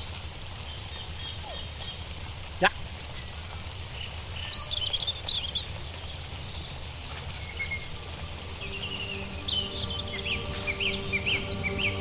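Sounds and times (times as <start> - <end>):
small songbirds twittering: 0.0 - 12.0
faint music with held notes: 6.3 - 12.0.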